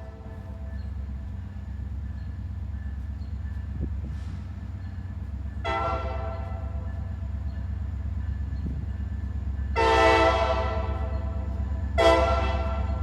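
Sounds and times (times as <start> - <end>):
diesel locomotive rumbling: 0.0 - 13.0
train air horn blasts: 5.6 - 6.8, 9.8 - 13.0.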